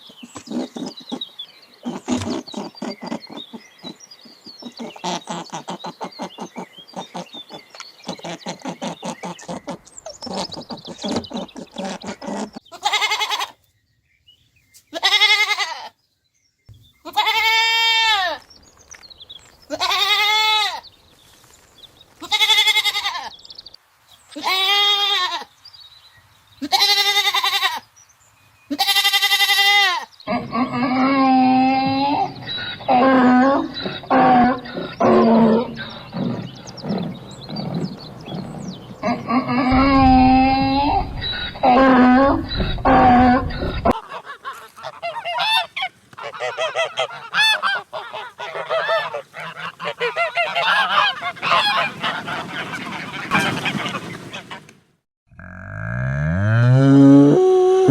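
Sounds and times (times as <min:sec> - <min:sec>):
goat bleating: 0:12.7 - 0:13.6, 0:14.9 - 0:15.9, 0:17.0 - 0:18.4, 0:19.7 - 0:20.8, 0:22.2 - 0:23.3, 0:24.4 - 0:25.5, 0:26.6 - 0:27.8, 0:28.7 - 0:35.9
lower-pitched animal calls: 0:30.3 - 0:51.1.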